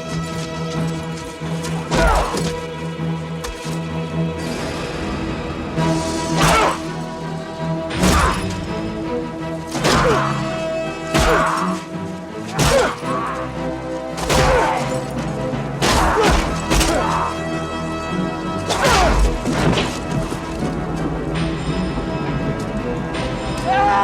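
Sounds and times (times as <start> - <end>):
film music bed: 0.0 - 24.0
heavy music hits: 1.7 - 24.0.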